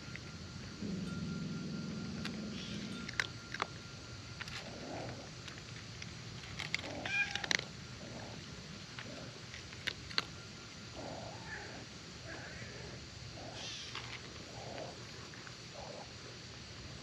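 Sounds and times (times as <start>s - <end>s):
cat meowing: 7.0s - 7.5s.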